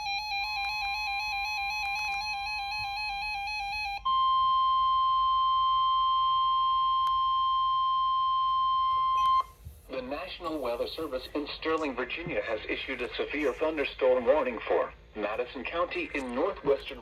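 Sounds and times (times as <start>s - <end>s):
loud steady alarm tone: 0.0s - 9.5s.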